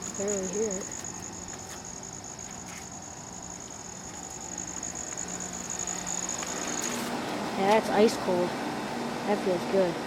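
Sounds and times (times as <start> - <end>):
high pulsing trill: 0.0 - 7.1
air conditioner hum: 0.0 - 10.0.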